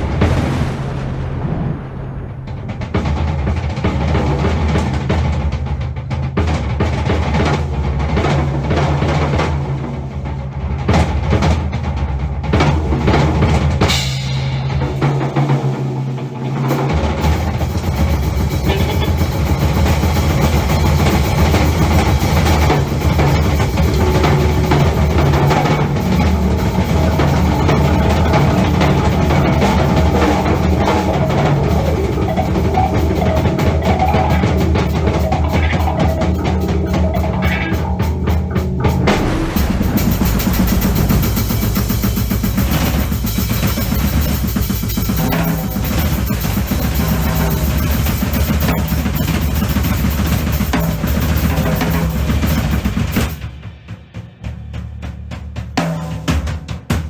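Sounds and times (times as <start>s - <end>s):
crash cymbal: 0.0s - 4.3s, 17.2s - 54.3s
ringing low drums: 0.0s - 4.3s, 17.5s - 44.6s
bass drum and snare hits: 0.0s - 5.2s, 17.2s - 57.0s.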